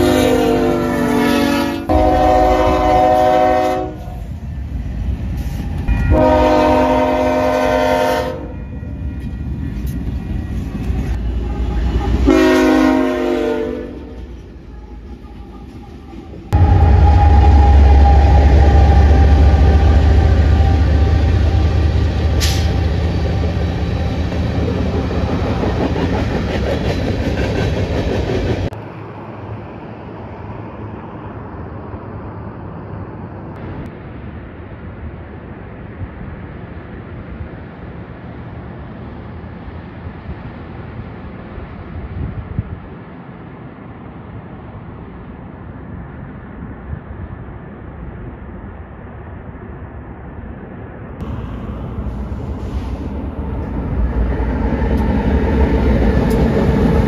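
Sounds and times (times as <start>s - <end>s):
locomotive air horn blasts: 0.0s - 4.2s, 6.0s - 8.8s, 11.6s - 14.2s, 16.6s - 21.8s
diesel locomotive engine rumble: 0.0s - 57.0s
wheel and rail noise: 0.0s - 57.0s.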